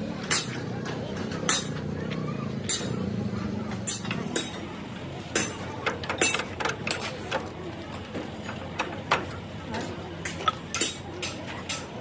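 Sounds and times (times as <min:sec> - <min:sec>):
metal tools clinking on steel: 0:05.3 - 0:07.2, 0:09.3 - 0:11.9.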